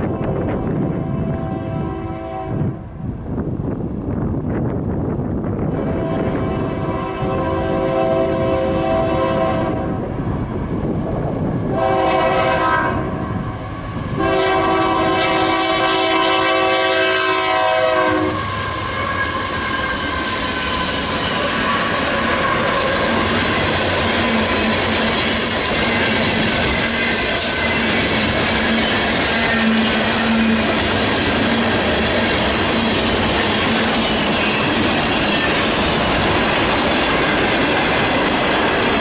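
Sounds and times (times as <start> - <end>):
train horn blasts: 0.0 - 2.9, 5.7 - 10.1, 11.7 - 20.4, 21.3 - 23.5, 28.7 - 30.8
freight train passing: 0.0 - 39.0.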